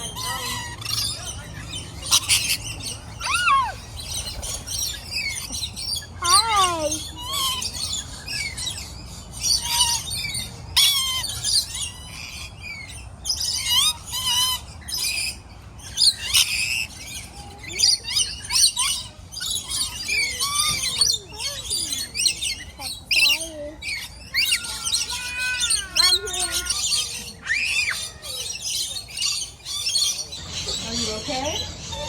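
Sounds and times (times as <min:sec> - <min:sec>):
small birds chirping and squawking: 0:00.0 - 0:32.0.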